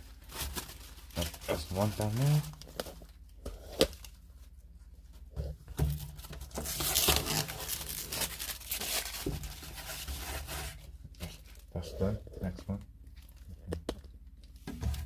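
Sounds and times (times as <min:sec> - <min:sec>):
sticker peeling and crinkling: 0:06.5 - 0:09.8.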